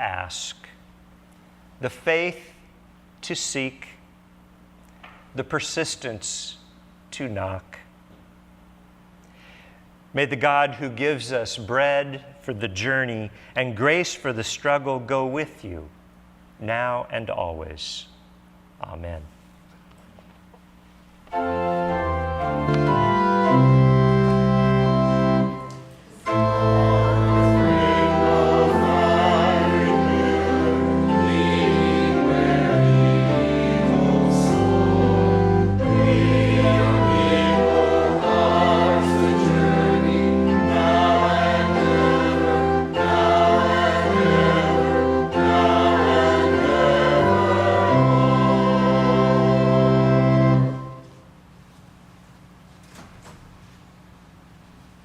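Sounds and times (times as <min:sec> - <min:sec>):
church organ: 0:09.4 - 0:15.9, 0:20.9 - 0:51.7
choir singing sustained chords: 0:21.3 - 0:51.1.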